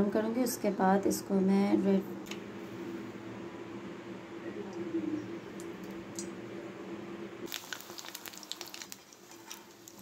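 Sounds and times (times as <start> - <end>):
steady low hum: 0.0 - 7.5
food crackling in hot oil: 7.5 - 10.0.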